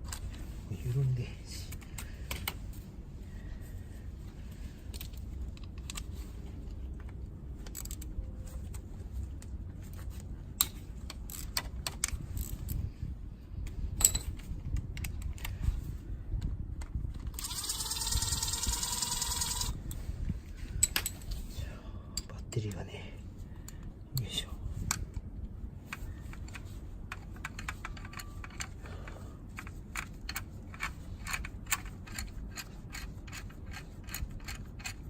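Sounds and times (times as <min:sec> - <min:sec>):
steady low rumble: 0:00.0 - 0:35.0
high whirring tone: 0:17.3 - 0:20.0.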